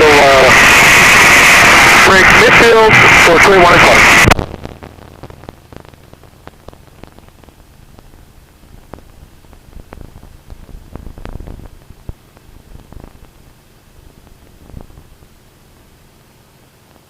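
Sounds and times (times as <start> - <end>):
radio transmission: 0.0 - 13.6
weak low hum: 0.0 - 17.0
faint crackling clicks: 4.3 - 13.6.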